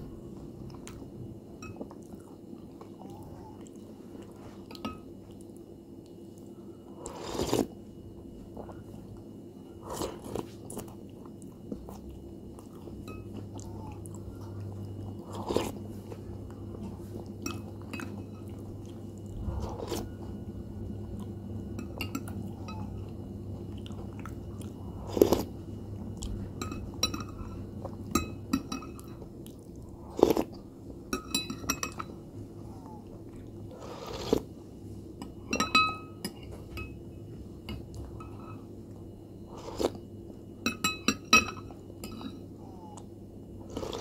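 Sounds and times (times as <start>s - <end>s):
cereal chewing and crunching: 7.0s - 7.8s, 23.6s - 26.4s, 29.4s - 30.6s, 33.3s - 34.6s, 39.5s - 40.0s, 43.6s - 44.0s
spoon clinking on glass bowl: 31.1s - 32.1s.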